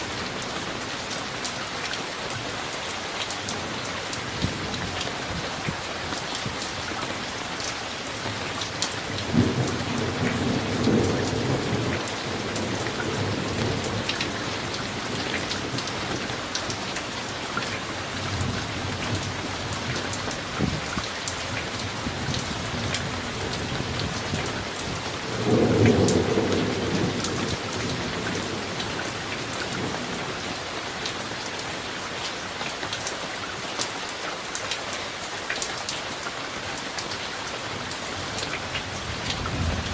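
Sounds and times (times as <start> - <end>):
steady rain with drops ticking: 0.0 - 39.9
thunder rumbling: 21.7 - 30.6, 38.9 - 39.9.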